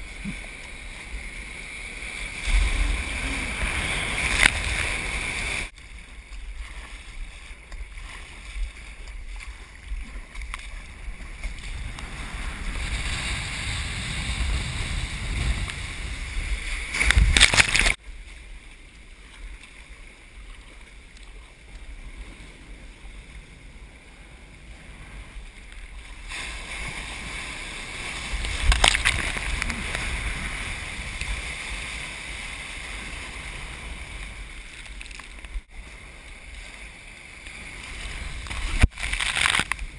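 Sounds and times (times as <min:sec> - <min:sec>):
ocean surf rushing: 0:00.0 - 0:05.7, 0:26.1 - 0:34.8
wind rumble on microphone: 0:00.0 - 0:19.6, 0:20.2 - 0:39.9.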